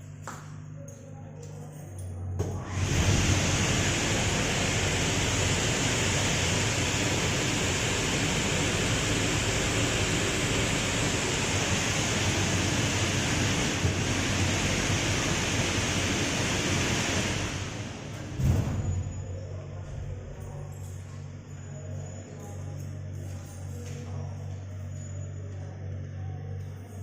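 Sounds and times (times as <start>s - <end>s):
blower fan hum: 0.0s - 27.0s
rush of air from nozzles: 2.7s - 18.0s.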